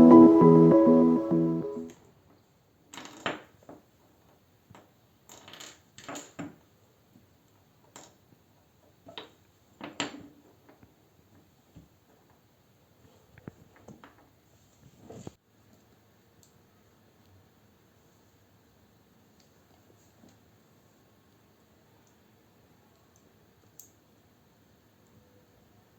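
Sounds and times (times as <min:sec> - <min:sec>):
background music: 0:00.0 - 0:01.9.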